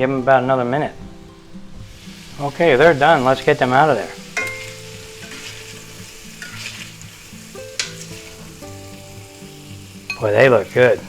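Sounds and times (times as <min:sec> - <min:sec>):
shrimp sizzling in oil: 0:00.0 - 0:11.0
metal spatula scraping pan: 0:01.9 - 0:08.6
spatula clink: 0:04.0 - 0:09.4, 0:10.0 - 0:10.9.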